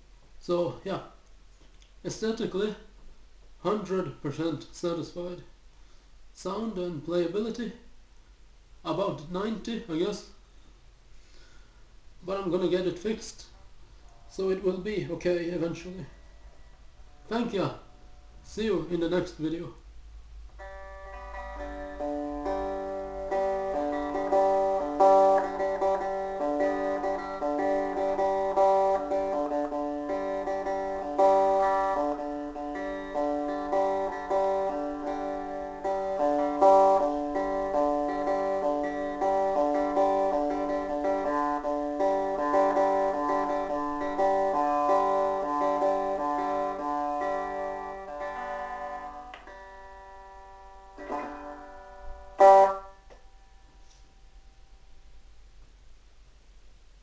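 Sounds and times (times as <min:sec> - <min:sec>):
guitar melody: 0:20.4 - 0:54.1.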